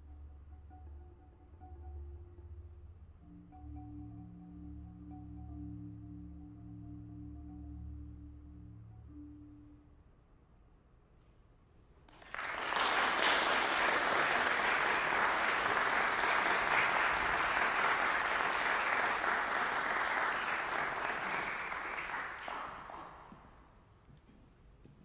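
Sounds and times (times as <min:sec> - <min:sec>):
audience applauding: 0:12.1 - 0:23.6.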